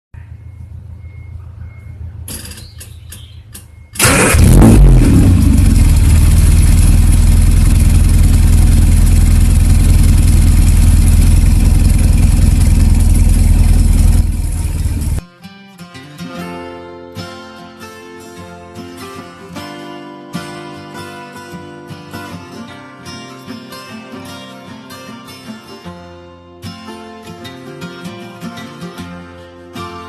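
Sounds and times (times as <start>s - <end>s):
car engine starting and idling: 0.2s - 15.2s.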